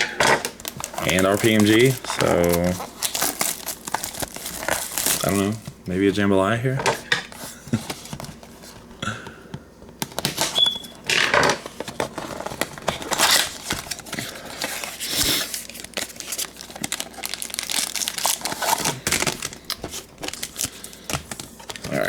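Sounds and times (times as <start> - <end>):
packaging tearing and crinkling: 0.4 - 5.8, 10.0 - 22.0.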